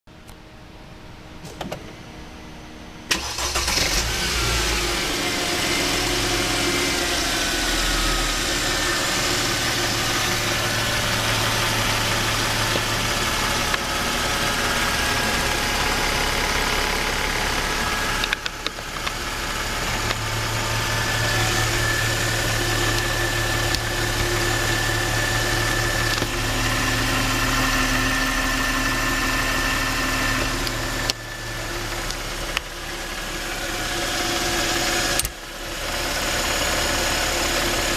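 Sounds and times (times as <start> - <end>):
car engine starting and idling: 3.0 - 37.9.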